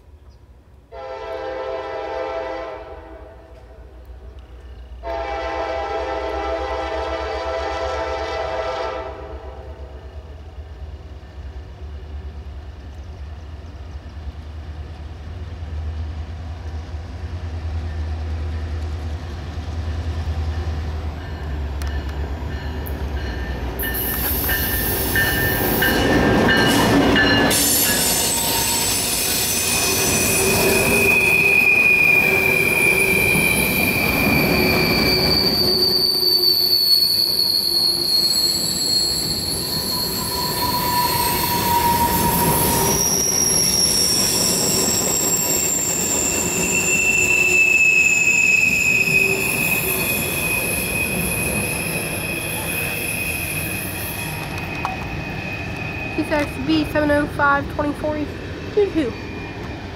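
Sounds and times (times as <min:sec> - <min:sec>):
train wheels squealing: 0:21.2 - 0:57.0, 0:58.4 - 0:59.9.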